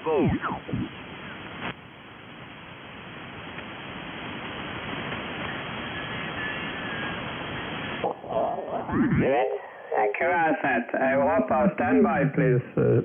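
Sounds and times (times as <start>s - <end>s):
shortwave receiver hiss: 0.0s - 13.0s.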